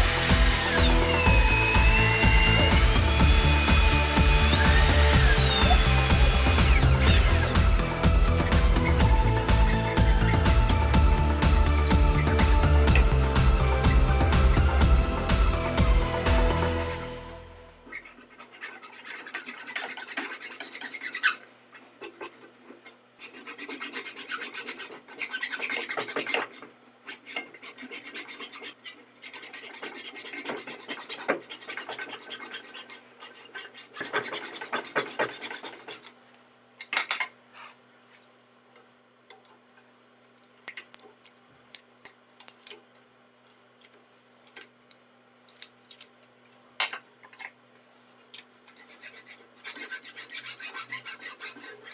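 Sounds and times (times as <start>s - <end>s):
file rasping: 0.0s - 14.9s, 17.9s - 36.2s, 48.6s - 51.9s.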